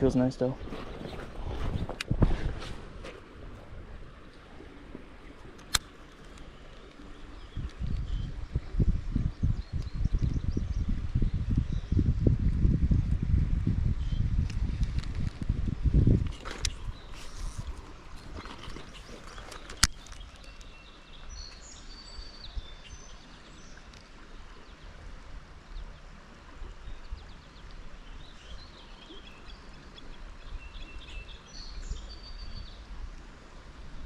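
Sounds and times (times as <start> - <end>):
songbird singing: 4.1 - 12.3, 14.0 - 14.4, 16.0 - 24.9, 25.7 - 32.9.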